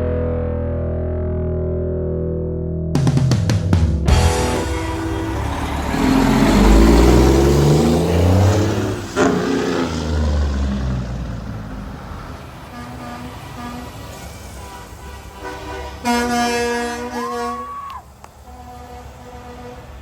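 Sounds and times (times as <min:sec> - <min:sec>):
truck diesel engine revving: 0:04.1 - 0:17.1.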